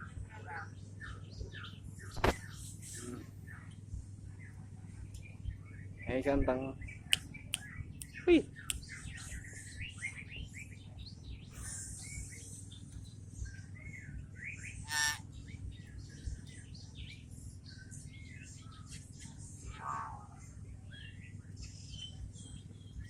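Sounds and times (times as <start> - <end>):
bird harsh squawk: 14.8 - 15.3.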